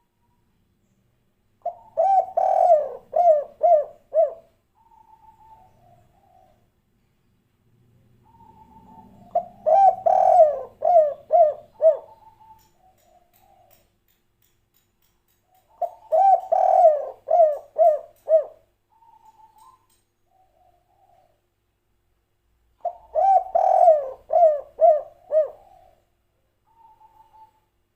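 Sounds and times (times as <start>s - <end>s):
dove cooing: 1.6s - 6.7s, 8.2s - 13.8s, 15.7s - 21.4s, 22.8s - 27.7s.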